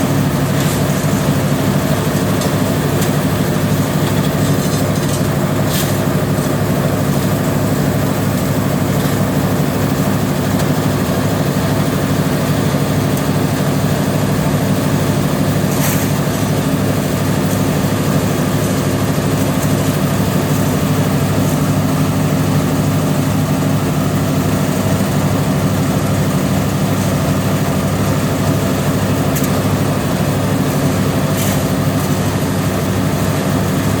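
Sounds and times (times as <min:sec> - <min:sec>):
construction machine engine running: 0:00.0 - 0:34.0.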